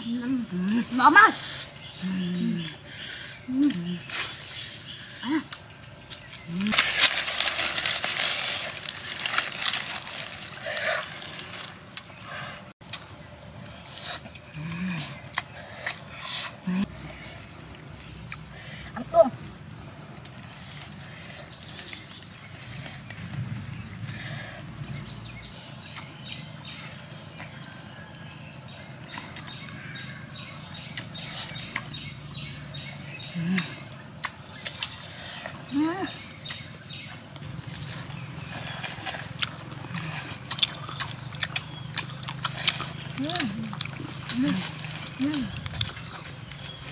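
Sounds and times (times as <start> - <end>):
wet chewing and crunching: 3.5 - 18.6, 25.6 - 46.9.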